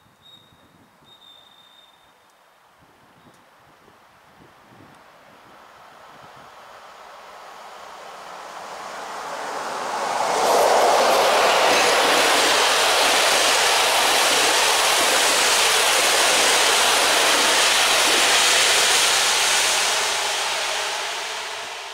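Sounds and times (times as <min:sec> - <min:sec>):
passenger train passing at speed: 0:04.5 - 0:21.9
wheel and rail noise: 0:04.9 - 0:21.9.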